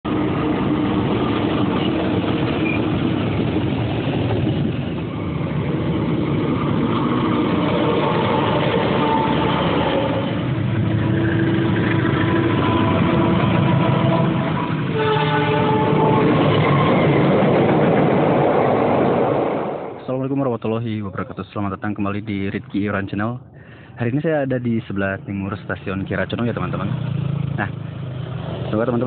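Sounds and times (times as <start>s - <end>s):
diesel locomotive engines running: 0.1s - 20.0s, 20.9s - 29.0s
train coaches rolling on rails: 0.1s - 23.0s.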